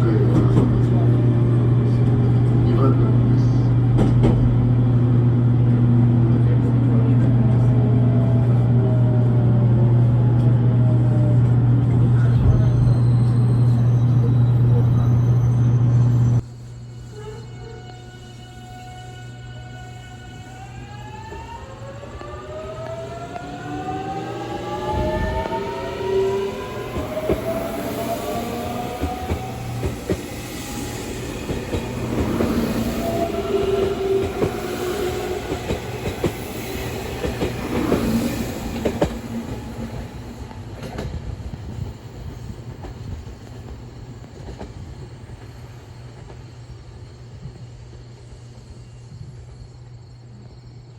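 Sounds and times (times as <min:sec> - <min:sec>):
electric train motors whining: 0:12.9 - 0:49.5.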